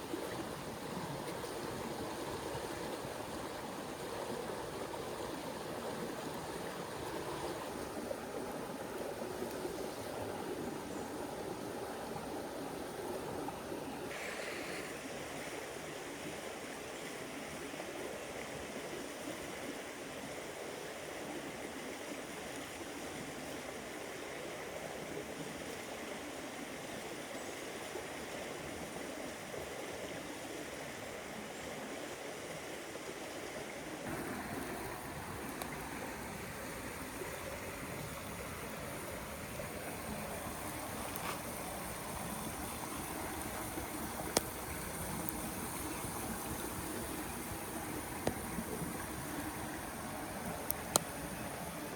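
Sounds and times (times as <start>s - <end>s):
river water rushing over stones: 0.0s - 20.1s, 33.8s - 51.9s.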